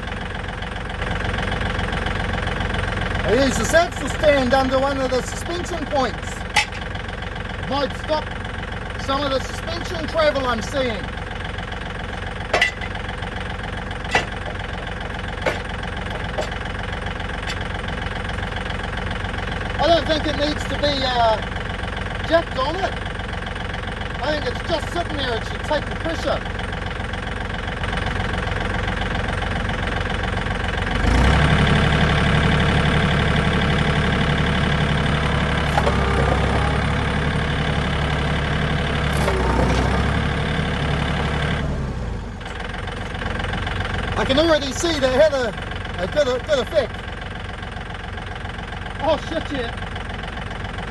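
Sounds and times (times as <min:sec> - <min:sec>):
tractor engine idling: 0:00.0 - 0:50.9
sharp metal clanks: 0:06.5 - 0:06.9, 0:12.5 - 0:13.0, 0:14.1 - 0:14.6.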